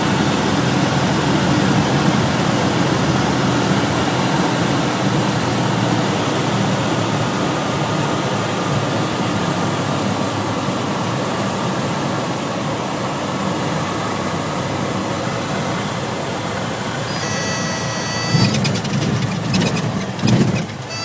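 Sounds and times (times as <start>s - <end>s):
propeller plane engine hum: 0.0s - 21.0s
faint high whine: 17.0s - 18.8s.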